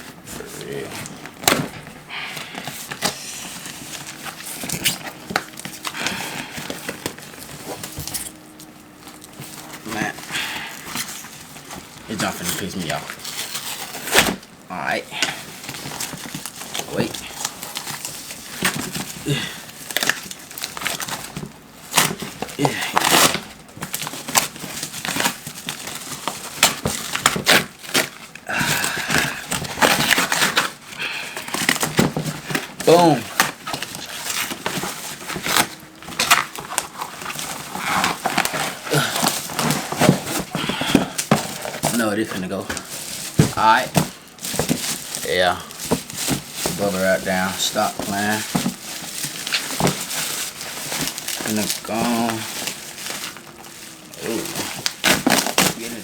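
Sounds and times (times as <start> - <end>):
cardboard box being torn open: 15.6 - 28.2, 31.4 - 56.0.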